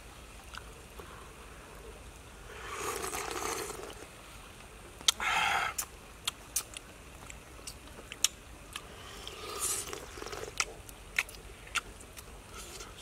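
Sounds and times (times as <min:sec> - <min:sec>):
slurping soup: 0:02.5 - 0:04.0, 0:09.0 - 0:10.6.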